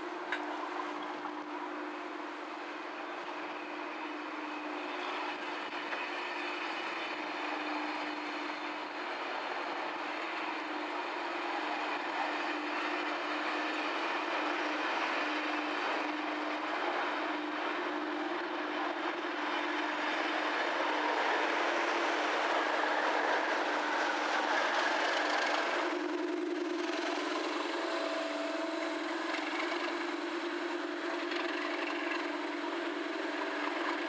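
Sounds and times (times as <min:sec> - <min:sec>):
diesel locomotive: 0:00.0 - 0:34.0
low hum: 0:25.6 - 0:34.0.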